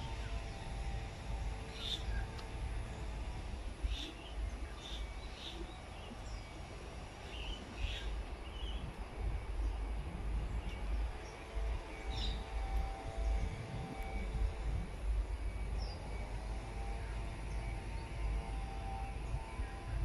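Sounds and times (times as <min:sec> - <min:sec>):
low uneven rumble: 0:00.0 - 0:20.0
bird chirps: 0:10.6 - 0:13.6.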